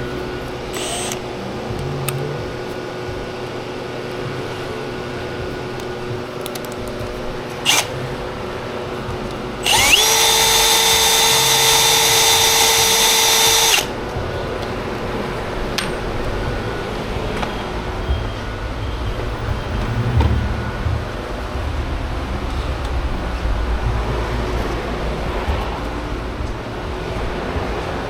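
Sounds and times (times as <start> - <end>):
power drill whining: 0.7 - 1.3, 7.6 - 8.2, 9.6 - 13.9.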